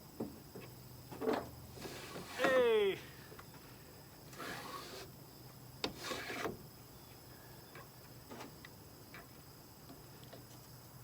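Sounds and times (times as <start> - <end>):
glass window scraping in runner: 5.9 - 6.6.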